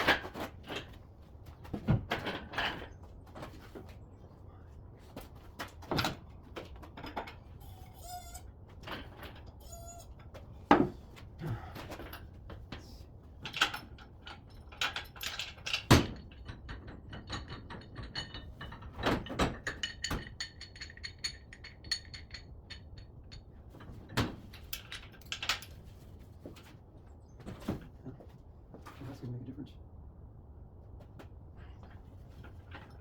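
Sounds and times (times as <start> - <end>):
equipment knocking and clanking: 13.4 - 25.7.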